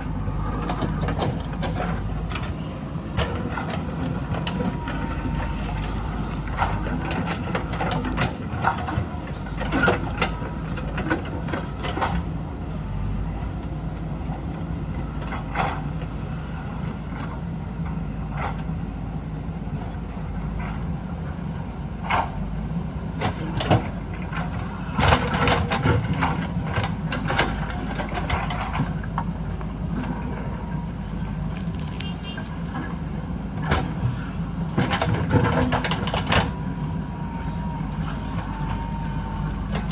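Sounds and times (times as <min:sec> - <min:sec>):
diesel machinery running: 0:00.0 - 0:39.9
digging clanks and knocks: 0:23.2 - 0:39.9.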